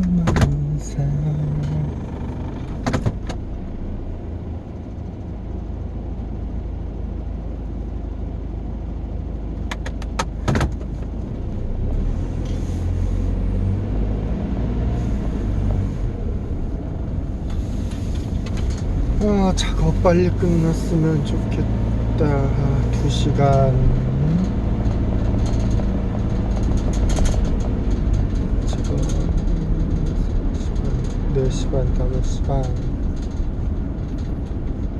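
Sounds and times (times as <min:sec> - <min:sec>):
car cabin road rumble: 0:00.0 - 0:34.9
sharp clicks: 0:09.6 - 0:10.8.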